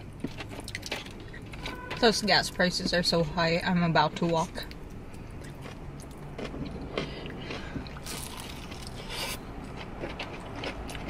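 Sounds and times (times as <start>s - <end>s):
crunchy chewing: 0.0s - 2.0s, 4.6s - 11.0s
low steady hum: 0.0s - 11.0s.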